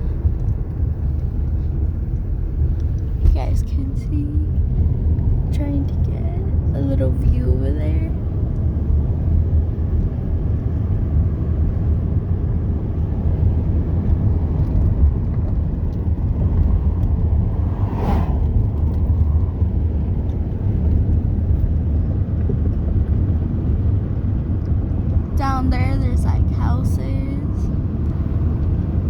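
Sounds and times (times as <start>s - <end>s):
car road rumble inside cabin: 0.0s - 29.0s.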